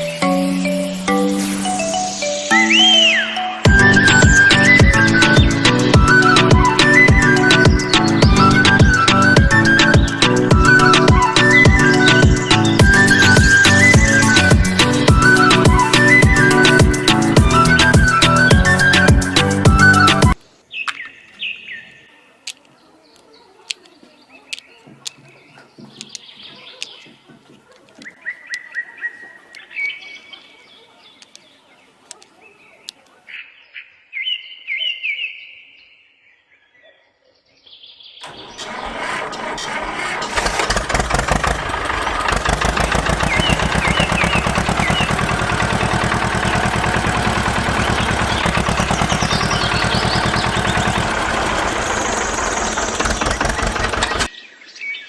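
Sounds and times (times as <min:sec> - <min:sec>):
birds chirping: 0:00.0 - 0:55.0
sharp clicks: 0:39.8 - 0:54.3
motor running with fast chatter: 0:40.3 - 0:54.3.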